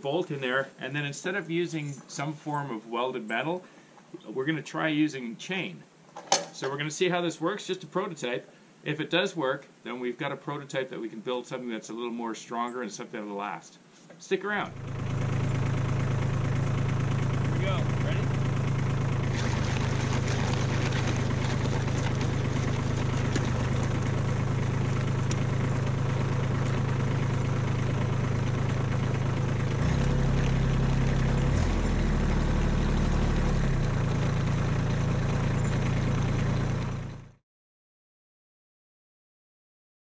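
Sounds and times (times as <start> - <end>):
tractor diesel engine running: 14.7 - 37.4.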